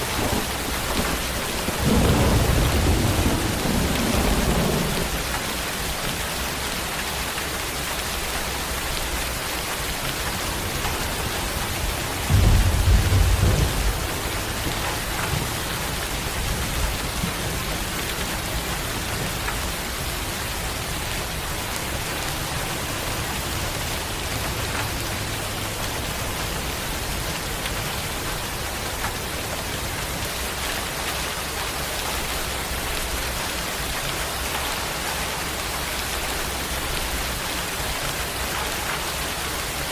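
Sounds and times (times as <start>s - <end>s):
low rumble of thunder: 0.0s - 6.2s, 10.2s - 21.4s
steady rain falling: 0.0s - 39.9s.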